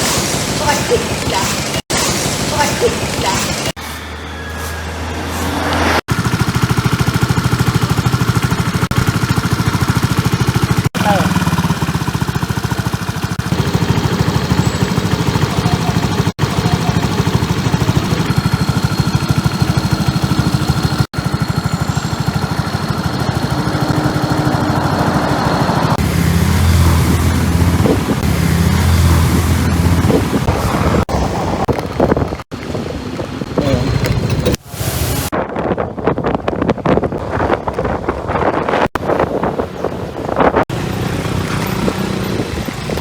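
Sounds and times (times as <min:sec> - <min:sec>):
scooter engine running: 0:00.0 - 0:35.3, 0:37.0 - 0:43.0
wind rush on microphone: 0:24.8 - 0:40.7, 0:41.4 - 0:43.0.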